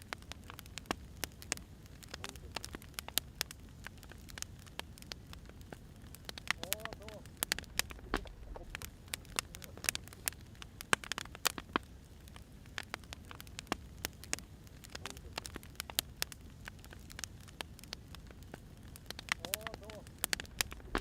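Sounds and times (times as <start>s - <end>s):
wood fire crackling: 0.0s - 21.0s
soft low rumble: 7.2s - 10.2s, 20.2s - 21.0s.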